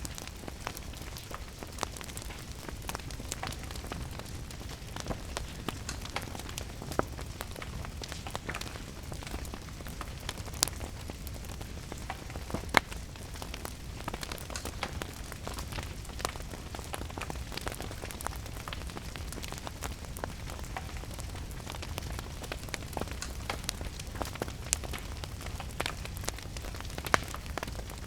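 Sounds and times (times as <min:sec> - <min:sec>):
rain patter: 0:00.0 - 0:28.0
wood fire crackling: 0:00.0 - 0:28.0.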